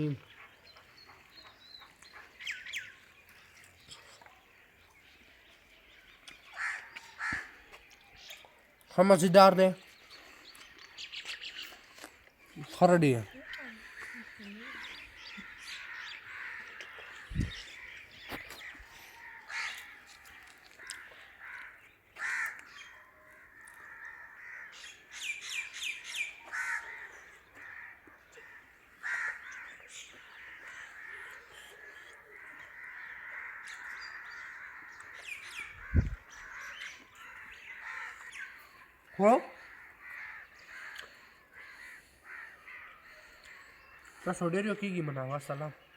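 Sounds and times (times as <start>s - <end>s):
bird chatter: 0.0s - 45.9s
crows cawing: 6.4s - 7.9s, 11.4s - 44.8s
dull low thumps: 17.3s - 17.7s.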